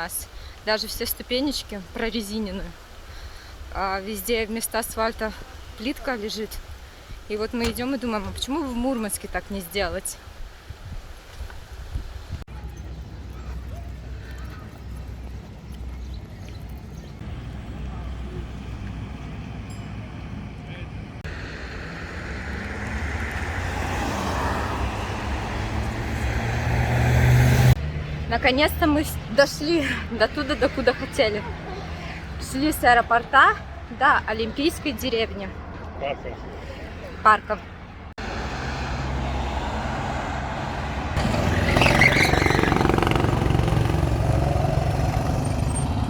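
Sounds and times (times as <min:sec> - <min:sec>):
vehicle rumble approaching: 0:12.5 - 0:34.0, 0:35.5 - 0:46.0.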